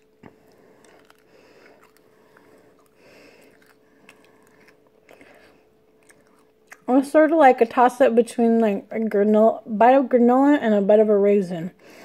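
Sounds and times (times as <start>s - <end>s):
chewing dried fruit: 0.0s - 7.2s
faint hum: 0.0s - 12.0s.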